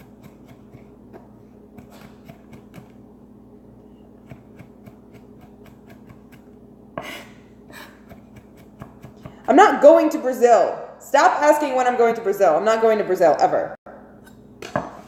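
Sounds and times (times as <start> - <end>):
knife chopping on cutting board: 0.0 - 3.0, 4.1 - 6.5, 8.0 - 9.5
steady low hum: 0.0 - 11.5.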